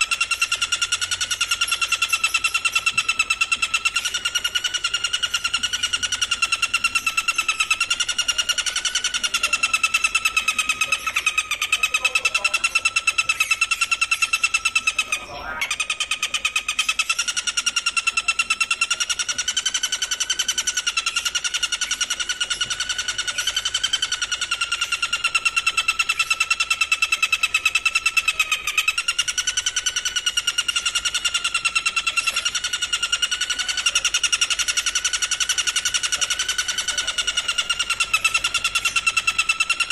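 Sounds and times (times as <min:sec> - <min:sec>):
insect trilling: 0:00.0 - 0:39.9.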